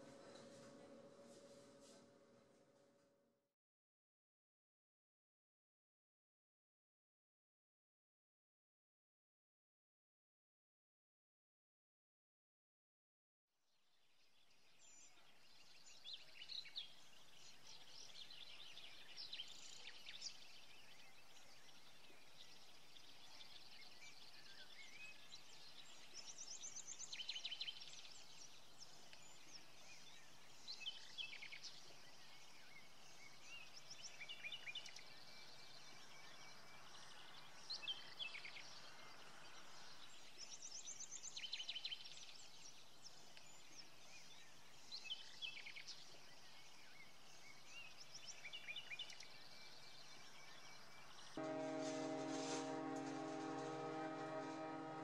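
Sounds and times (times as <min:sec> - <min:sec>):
small birds chirping: 0:14.2 - 0:55.0.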